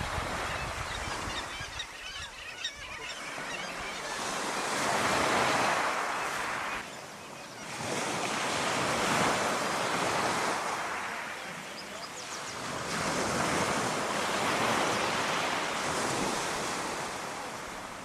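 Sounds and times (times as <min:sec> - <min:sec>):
faint bird calls: 0:00.3 - 0:08.2.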